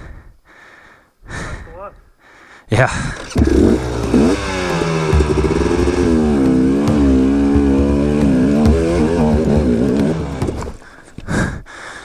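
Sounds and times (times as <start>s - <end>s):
dirt bike engine revving: 3.0s - 10.8s.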